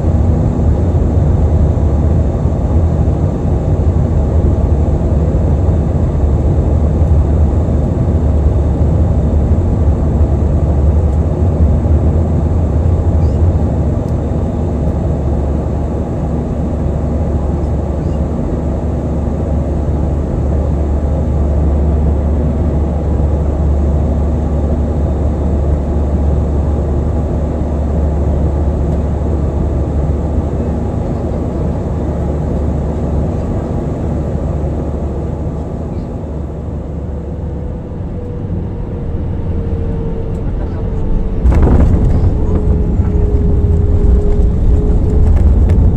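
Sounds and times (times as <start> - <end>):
jet engines rumbling: 0.0 - 45.9
rushing air: 39.1 - 45.9.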